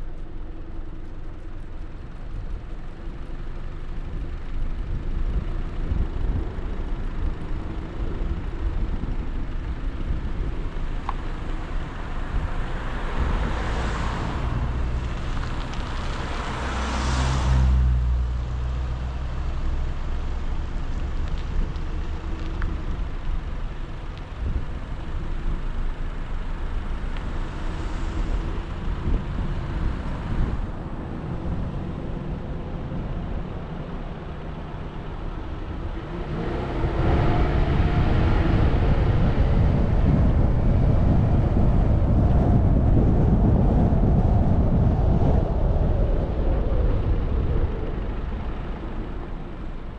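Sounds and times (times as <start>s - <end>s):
car road and engine noise: 0.0s - 49.9s
vehicle passing with a rush: 10.2s - 49.9s.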